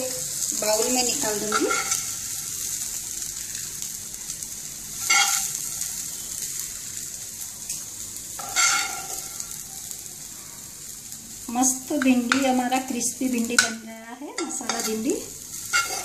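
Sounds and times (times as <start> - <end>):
food sizzling in a frying pan: 0.0 - 16.0
scraping in a pan: 0.8 - 2.2, 5.0 - 5.8, 8.4 - 9.5, 14.4 - 16.0.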